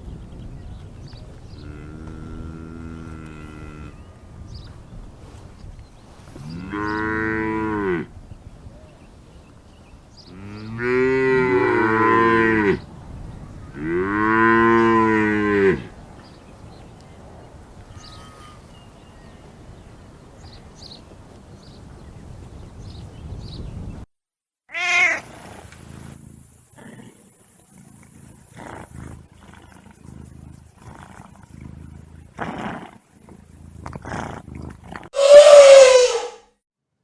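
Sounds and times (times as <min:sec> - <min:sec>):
cows mooing: 0:24.8 - 0:36.1.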